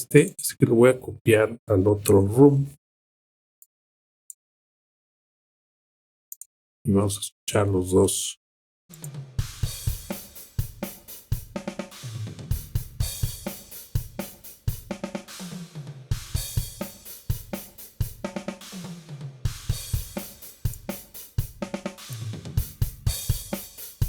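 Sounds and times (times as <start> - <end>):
snare drum: 8.9 - 24.0
hi-hat: 19.8 - 24.0.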